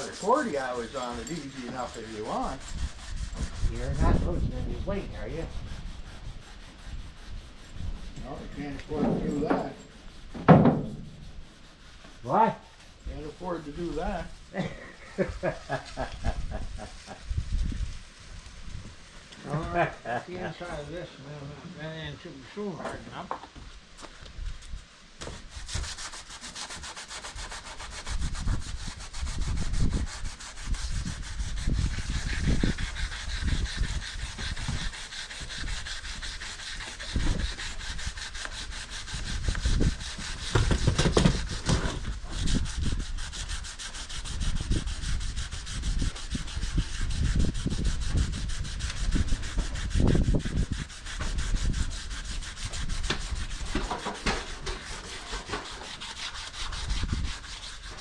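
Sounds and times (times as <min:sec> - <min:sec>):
sandpaper sanding by hand: 0:00.0 - 0:18.8, 0:24.6 - 0:58.0
low bumps: 0:07.7 - 0:19.0.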